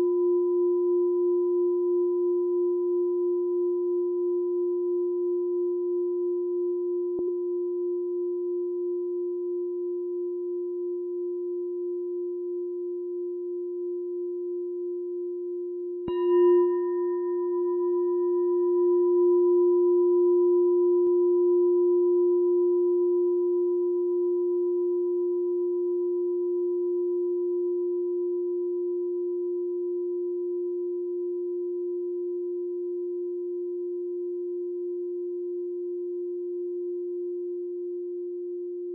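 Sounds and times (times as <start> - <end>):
meditation bell ringing: 16.0 - 23.1.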